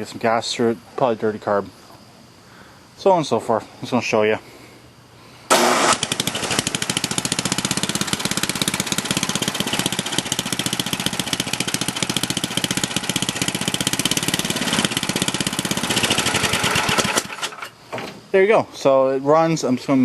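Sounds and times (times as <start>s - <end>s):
snowblower engine running: 5.5s - 17.7s.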